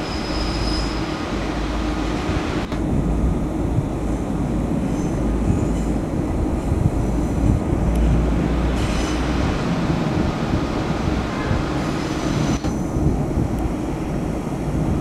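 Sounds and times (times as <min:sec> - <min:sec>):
high-pitched wheel squeals: 0:00.0 - 0:01.2
train rumbling on rails: 0:00.0 - 0:15.0.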